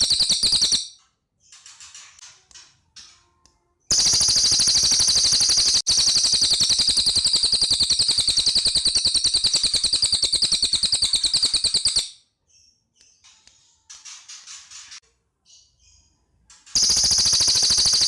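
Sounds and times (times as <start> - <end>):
bird singing a rapid trill: 0.0 - 1.0, 3.9 - 12.8, 16.8 - 18.0
faint bird chirps: 0.0 - 2.0, 3.0 - 18.0.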